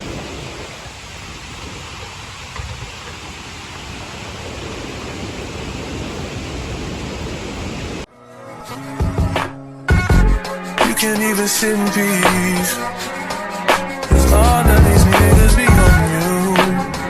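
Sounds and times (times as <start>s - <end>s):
waterfall roaring: 0.0s - 8.1s.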